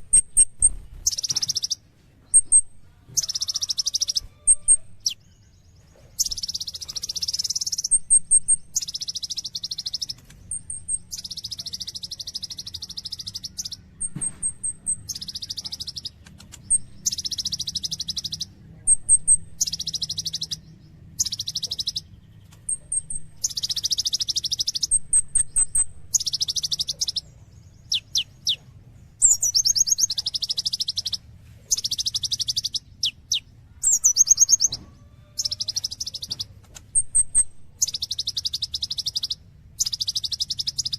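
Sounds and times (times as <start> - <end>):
sunbird singing buzzy trills: 0.0 - 40.9.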